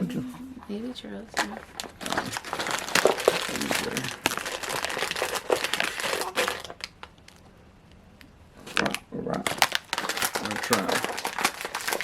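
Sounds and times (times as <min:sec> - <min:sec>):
plastic wrapper crinkling: 0:01.3 - 0:07.6, 0:08.2 - 0:12.0.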